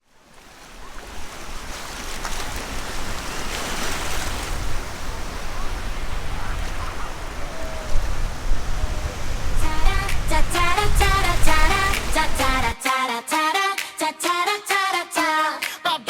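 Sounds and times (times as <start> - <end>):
waves washing onto beach: 0.0 - 12.8.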